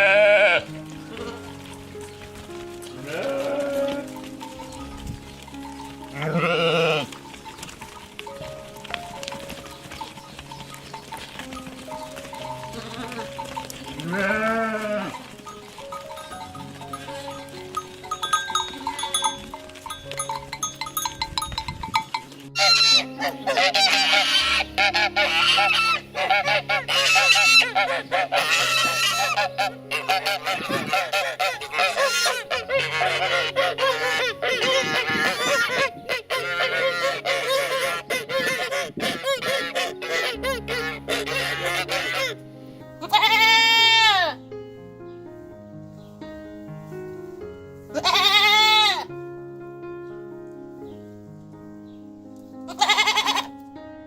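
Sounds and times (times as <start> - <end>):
waterfowl honking: 0.0 - 1.8, 5.5 - 19.4, 22.6 - 42.4, 43.0 - 44.4, 48.0 - 49.1, 52.7 - 53.5
soft background music: 0.0 - 54.0.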